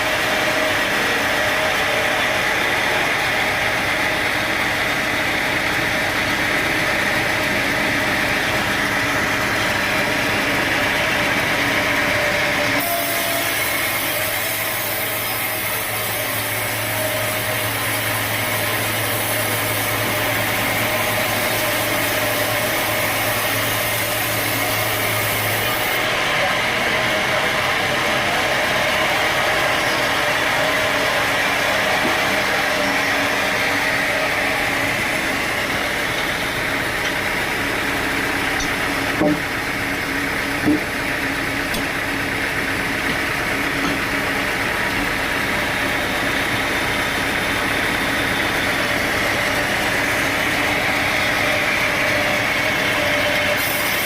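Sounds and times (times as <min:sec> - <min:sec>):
sawmill machinery drone: 0:00.0 - 0:54.0.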